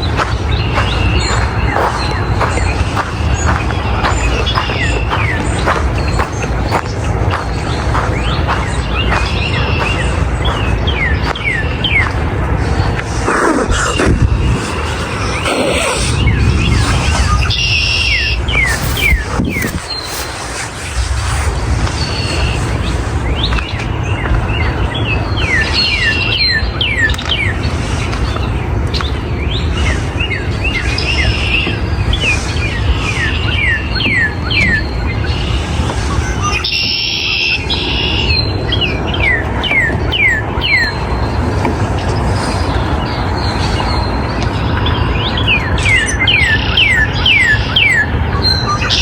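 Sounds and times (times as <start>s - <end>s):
bird chirps: 0.0s - 12.2s, 13.2s - 20.6s
songbirds whistling descending notes: 0.0s - 12.2s, 13.1s - 27.5s, 28.9s - 41.4s, 42.0s - 49.0s
birds chirping and singing: 0.0s - 20.9s, 21.9s - 49.0s
low rumble: 0.0s - 24.5s.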